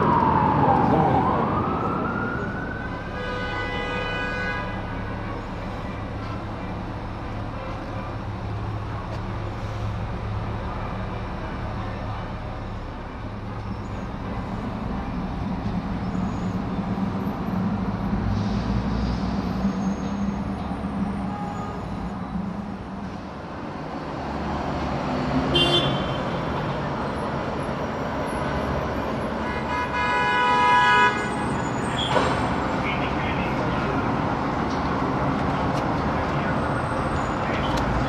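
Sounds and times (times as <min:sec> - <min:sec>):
vehicle engines rumbling: 0:00.0 - 0:38.0
car horn blast: 0:25.5 - 0:26.4, 0:29.4 - 0:31.3.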